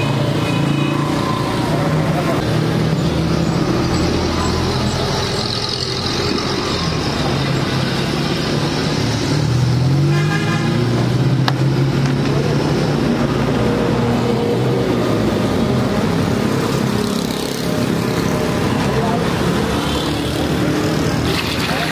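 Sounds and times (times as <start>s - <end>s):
road traffic: 0.0s - 21.9s
car horn honk: 10.1s - 10.8s.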